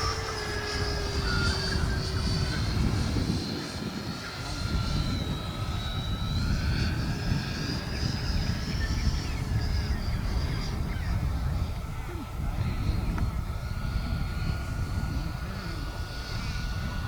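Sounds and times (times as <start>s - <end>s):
model jet fan whining: 0.0s - 17.0s.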